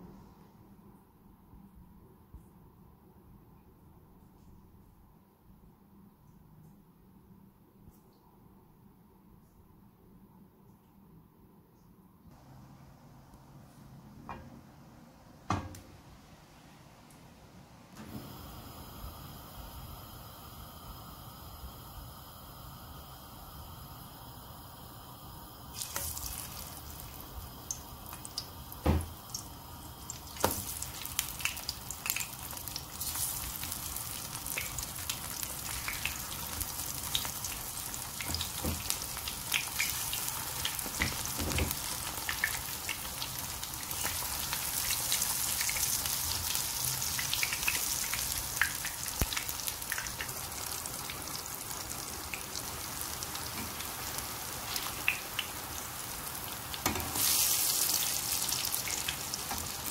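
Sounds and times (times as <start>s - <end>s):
food sizzling in hot oil: 18.2s - 59.9s.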